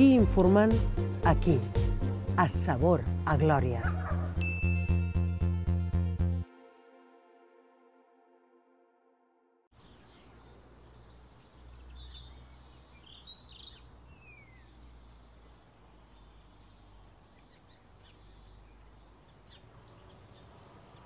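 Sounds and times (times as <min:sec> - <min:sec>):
small birds chirping: 0:09.8 - 0:21.0.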